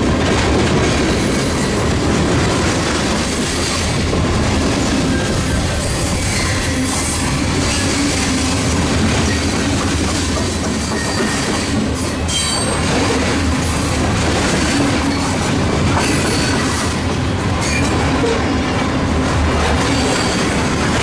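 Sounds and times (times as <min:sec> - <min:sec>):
high wheel squeal: 0:04.7 - 0:08.6, 0:10.8 - 0:12.8, 0:19.8 - 0:20.7.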